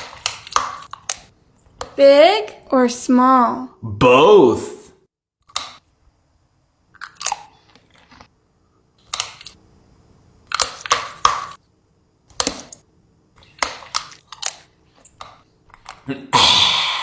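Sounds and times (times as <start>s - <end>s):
chewing crunchy food: 6.9s - 8.4s.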